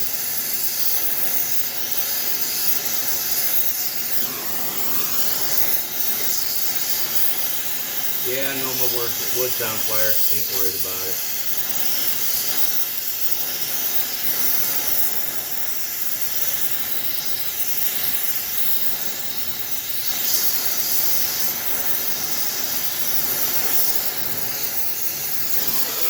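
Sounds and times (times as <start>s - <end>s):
gas torch flame hissing: 0.0s - 26.0s.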